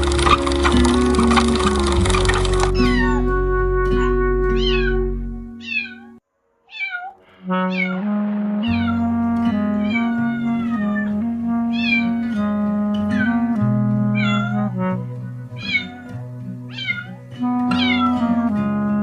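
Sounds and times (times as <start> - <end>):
background music: 0.0 - 5.7, 7.4 - 19.0
cat meowing: 2.8 - 3.2, 4.6 - 8.0, 8.6 - 9.0, 9.8 - 12.2, 14.2 - 14.7, 15.6 - 16.1, 16.7 - 17.2, 17.8 - 18.2.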